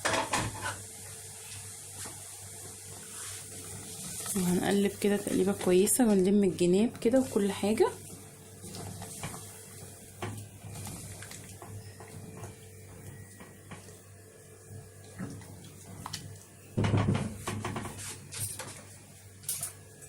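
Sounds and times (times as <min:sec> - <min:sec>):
spoon stirring in cooking pot: 0:07.0 - 0:14.0.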